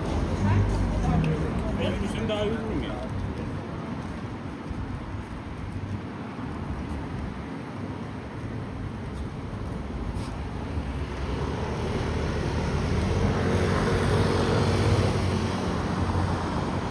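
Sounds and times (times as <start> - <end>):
street ambience: 0.0 - 16.9
vehicle engine passing by: 10.2 - 16.9.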